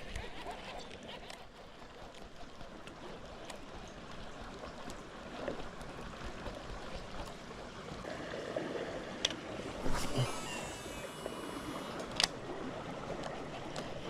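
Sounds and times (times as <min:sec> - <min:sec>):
river current rushing: 0:07.5 - 0:14.0.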